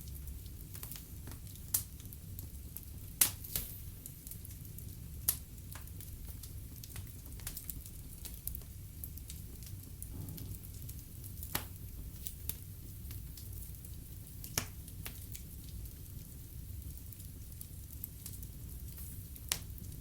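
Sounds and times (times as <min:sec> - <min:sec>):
log fire crackling and popping: 0:00.0 - 0:20.0
low rumble: 0:10.1 - 0:11.4.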